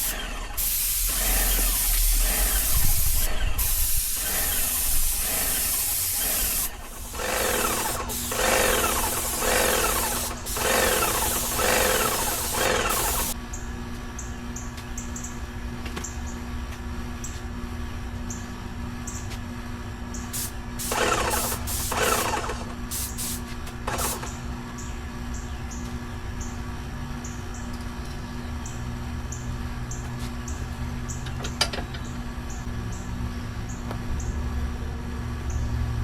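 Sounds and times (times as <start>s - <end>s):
paint sprayer hissing: 0.0s - 13.4s, 20.3s - 24.4s
sprayer pump humming and ticking: 0.0s - 13.4s, 20.4s - 23.2s, 23.8s - 24.4s.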